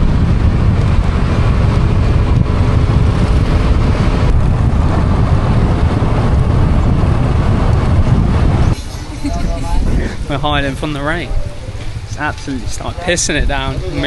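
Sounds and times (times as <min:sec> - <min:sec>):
road noise: 0:00.0 - 0:14.0
scooter engine: 0:00.0 - 0:14.0
wind rumbling on microphone: 0:00.0 - 0:14.0
heavy rain: 0:03.4 - 0:14.0.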